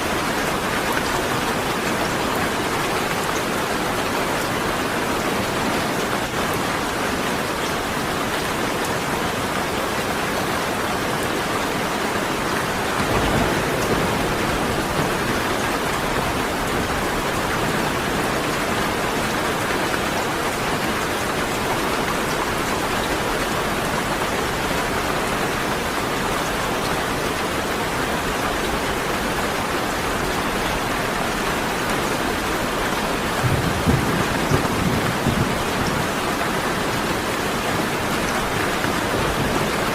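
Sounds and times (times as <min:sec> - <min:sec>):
heavy rain hissing: 0:00.0 - 0:39.9
thunder rumbling: 0:12.7 - 0:18.6, 0:33.2 - 0:39.9.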